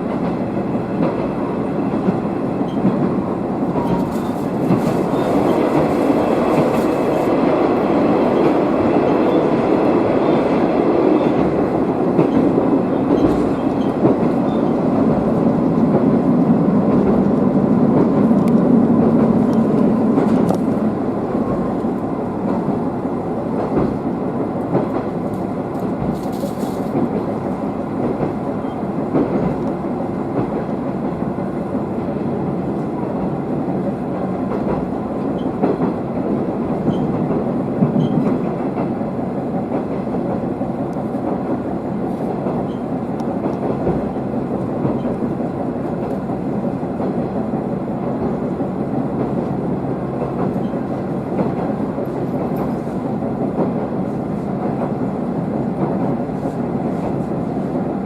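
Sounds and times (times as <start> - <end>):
wheels clickety-clack: 0.0 - 7.6, 11.2 - 16.1, 42.1 - 46.3, 50.2 - 55.1
railcar engine and wheel rumble: 0.0 - 58.0.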